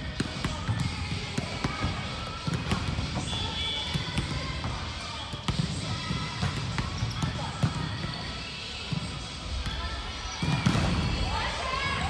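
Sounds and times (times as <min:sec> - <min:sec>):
players' voices: 0:00.0 - 0:12.0
volleyball slaps and bounces: 0:00.0 - 0:12.0.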